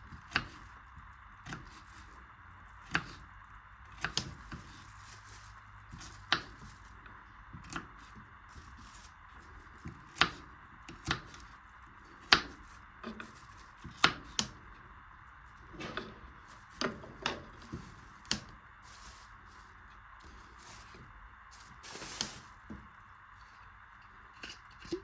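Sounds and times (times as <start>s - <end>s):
faint steady hiss: 12.2s - 25.0s.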